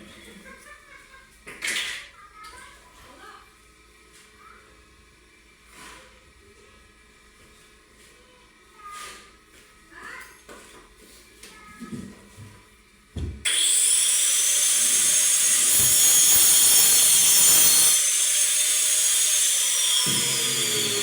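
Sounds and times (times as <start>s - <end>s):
power tool cutting wood: 13.5s - 21.0s.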